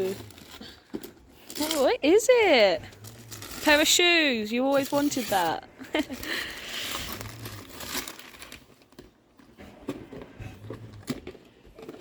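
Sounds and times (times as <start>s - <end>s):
wrapping paper crinkling: 0.0s - 9.4s.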